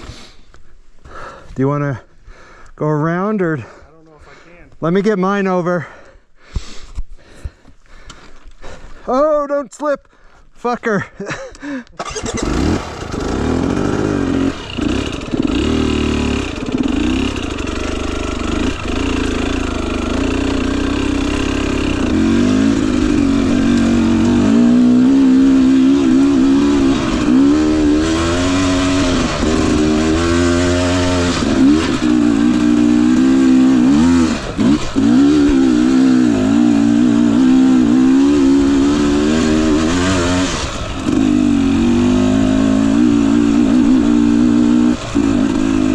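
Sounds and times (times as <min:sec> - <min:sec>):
dirt bike engine revving: 0:12.0 - 0:45.9.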